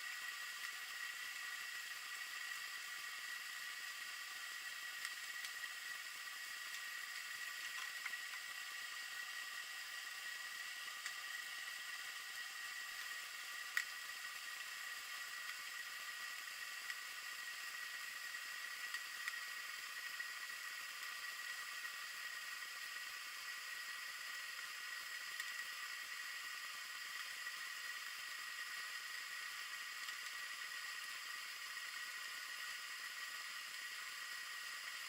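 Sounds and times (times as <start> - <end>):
faint clicks: 7.6 - 8.4, 13.7 - 13.9.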